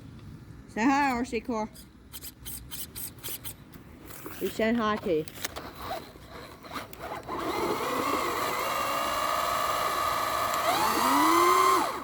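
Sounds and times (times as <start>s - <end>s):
electric motor whining: 6.6s - 12.0s.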